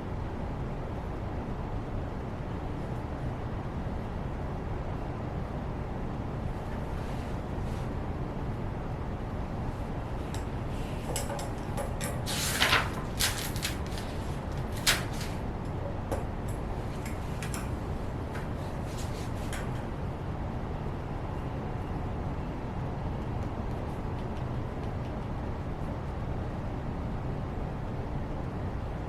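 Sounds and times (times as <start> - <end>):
low background hum: 0.0 - 29.0
taps and rustles at a desk: 10.2 - 19.9, 23.2 - 25.4.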